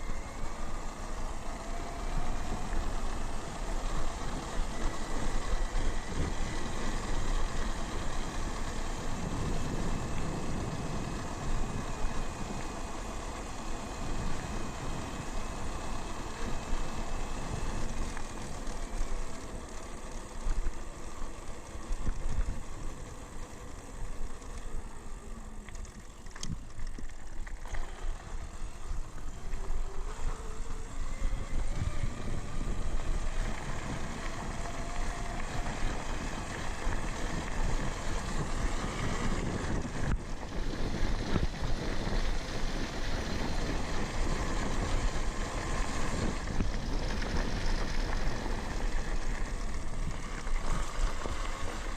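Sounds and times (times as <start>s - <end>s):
electric motor whine: 0.0s - 51.9s
rolling tyre noise: 0.0s - 51.9s
wind on microphone: 8.4s - 12.7s, 30.4s - 51.9s.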